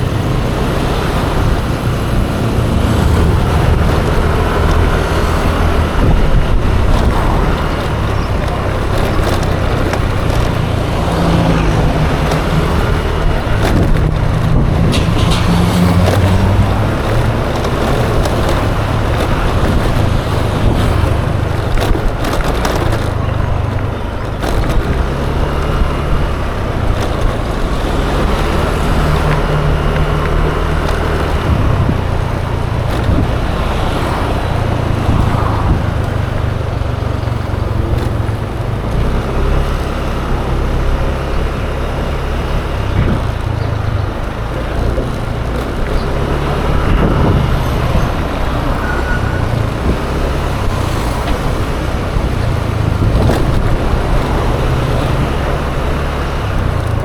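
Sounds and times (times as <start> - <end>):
scooter engine running: 0.0 - 57.0
wind and road noise: 0.0 - 57.0.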